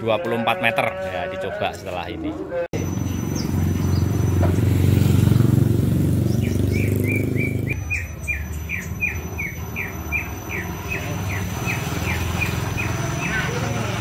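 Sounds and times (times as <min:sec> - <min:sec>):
bird chirping: 0:02.8 - 0:13.9.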